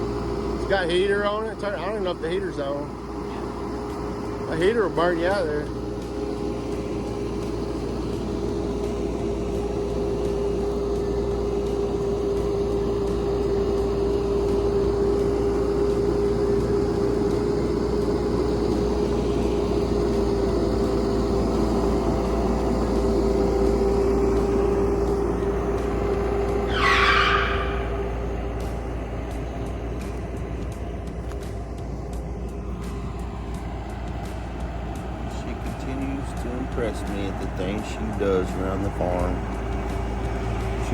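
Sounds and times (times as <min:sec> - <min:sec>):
excavator diesel engine running: 0:00.0 - 0:40.9
high squeal: 0:26.4 - 0:28.9.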